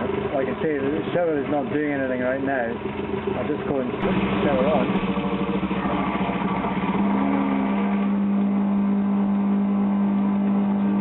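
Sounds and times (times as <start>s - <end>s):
shower pump loud steady hum: 0.0s - 11.0s
shower pump pulsing buzz: 2.8s - 11.0s.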